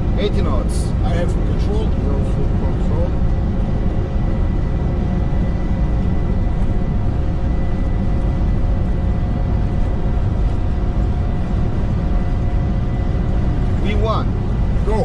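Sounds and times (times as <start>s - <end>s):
jet engines low rumble: 0.0s - 15.0s
steady hums: 0.0s - 15.0s.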